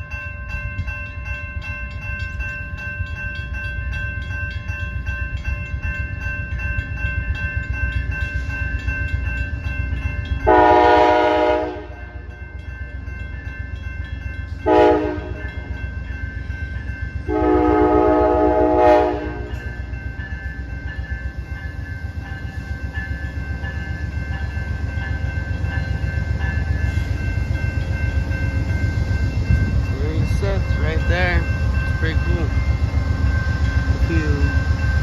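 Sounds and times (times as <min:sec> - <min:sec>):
diesel locomotive rumble: 0:01.6 - 0:35.0
train horn blasts: 0:10.4 - 0:12.2, 0:14.6 - 0:15.5, 0:17.3 - 0:19.6
bell ringing rapidly: 0:23.0 - 0:35.0.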